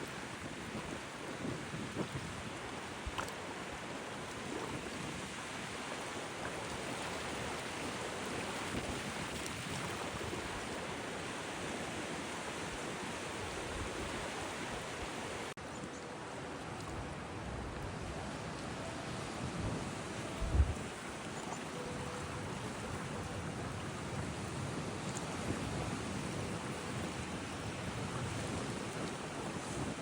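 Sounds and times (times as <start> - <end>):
sea surf: 0.0 - 30.0
strong wind on microphone: 0.4 - 2.6, 17.4 - 21.0, 22.0 - 30.0.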